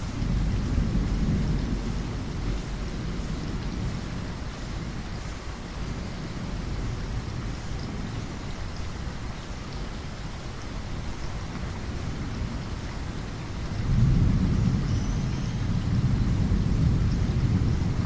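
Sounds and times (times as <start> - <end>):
thunder rumbling: 0.0 - 9.3, 11.0 - 18.0
rain falling: 0.0 - 18.0.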